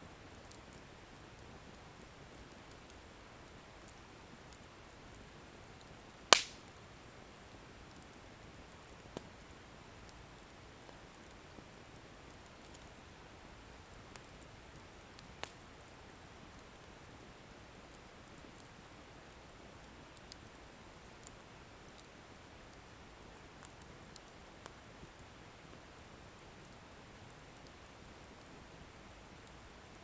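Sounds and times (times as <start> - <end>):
faint crackles: 0.2 - 30.0
bonfire hissing: 5.1 - 6.8
firewood popping: 6.3 - 6.7.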